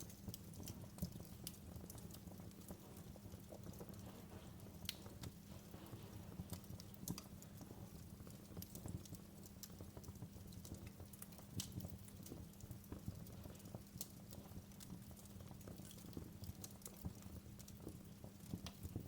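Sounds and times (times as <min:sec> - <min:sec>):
loud fire snaps: 0:00.0 - 0:19.0
low fire rumble: 0:00.0 - 0:19.0
wood fire crackling: 0:00.0 - 0:19.0.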